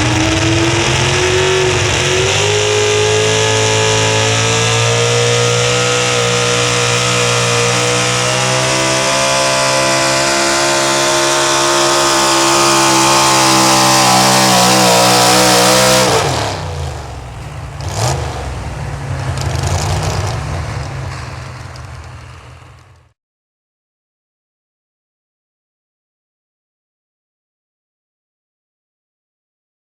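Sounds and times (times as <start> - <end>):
truck engine at full throttle: 0.0 - 23.1.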